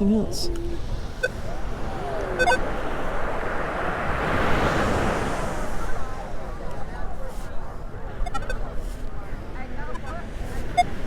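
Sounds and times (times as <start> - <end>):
ocean surf on beach: 0.0 - 8.7.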